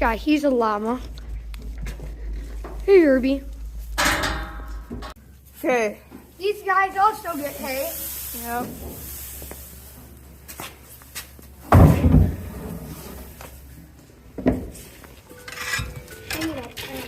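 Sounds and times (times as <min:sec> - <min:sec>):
knocks and thumps: 0:03.9 - 0:05.2, 0:11.6 - 0:12.5.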